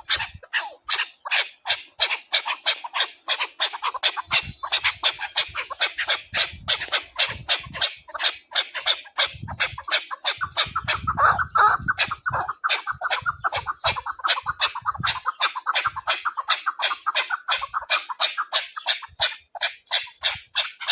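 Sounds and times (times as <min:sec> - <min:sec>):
partridge calling harsh notes: 0:00.0 - 0:20.9.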